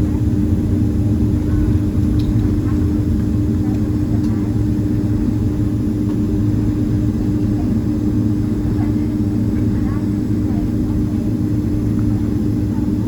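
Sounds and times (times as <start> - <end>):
airplane cabin engine drone: 0.0 - 13.0.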